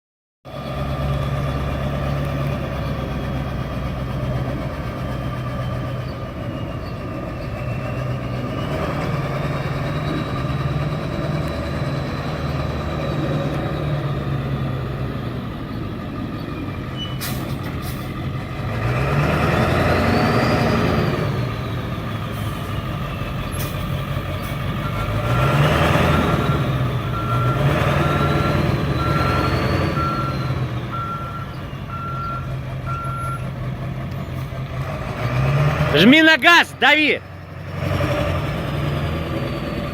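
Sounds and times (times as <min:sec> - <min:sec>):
truck engine idling and revving: 0:00.4 - 0:39.9
reversing beeper: 0:26.2 - 0:33.5.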